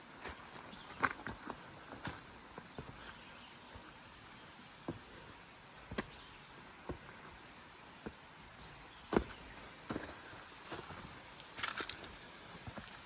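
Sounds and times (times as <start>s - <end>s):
footsteps: 0.2s - 4.0s, 9.1s - 13.0s.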